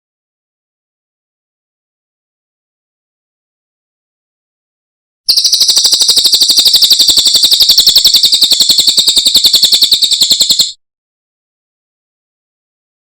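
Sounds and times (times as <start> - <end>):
bird high-pitched trill: 5.3 - 10.8.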